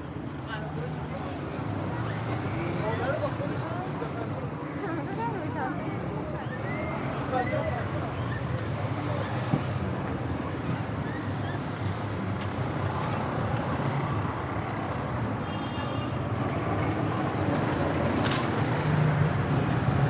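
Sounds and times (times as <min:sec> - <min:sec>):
traffic noise: 0:00.0 - 0:20.0
people's voices: 0:00.4 - 0:11.9.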